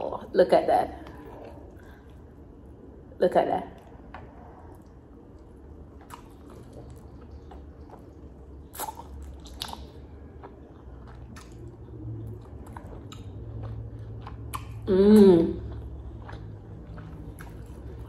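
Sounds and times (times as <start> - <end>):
faint low hum: 0.0 - 18.0
wet chewing and biting: 3.8 - 18.0.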